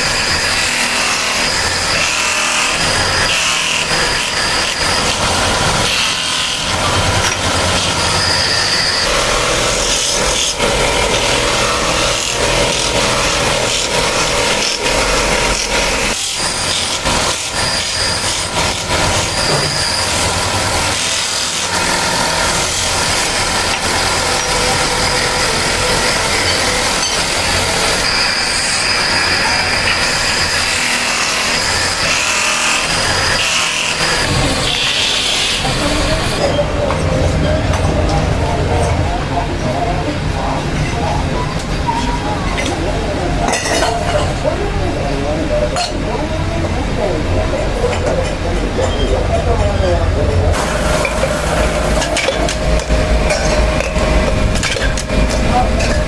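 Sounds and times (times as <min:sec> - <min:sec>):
power tool working sheet metal: 0:00.0 - 0:41.8, 0:45.7 - 0:56.0
high whine: 0:04.3 - 0:16.1, 0:34.2 - 0:43.5, 0:45.6 - 0:56.0.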